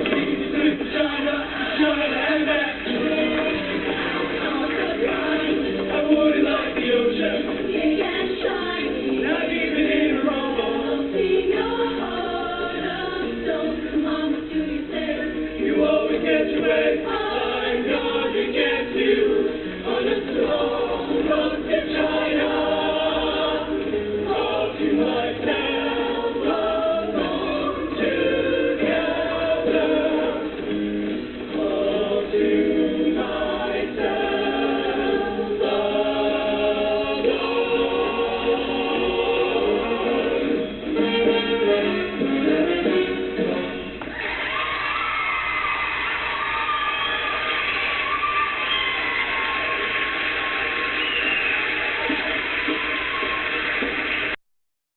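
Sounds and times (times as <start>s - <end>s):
choir singing in harmony: 0.0s - 43.8s.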